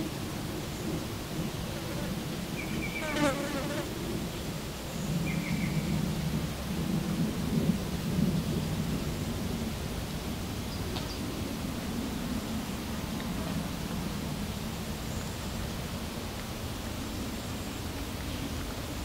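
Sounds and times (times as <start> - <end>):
flying insect buzzing: 2.0 - 3.9.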